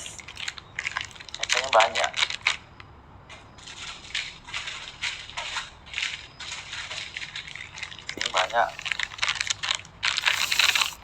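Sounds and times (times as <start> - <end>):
plastic wrappers crinkling: 8.2 - 11.0.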